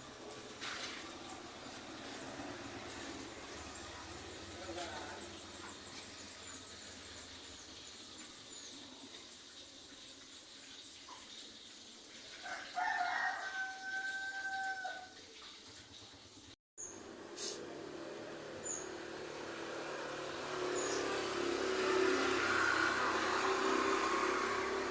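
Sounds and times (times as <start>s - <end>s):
rooster crowing: 12.4s - 15.2s.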